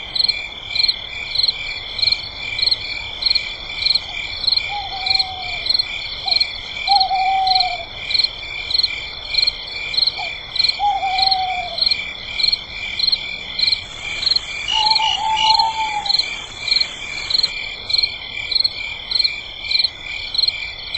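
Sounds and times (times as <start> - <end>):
high insect trill: 0.2 - 20.9
low falling frog call: 4.0 - 8.3, 9.4 - 18.1
pulsed frog call: 10.2 - 18.0.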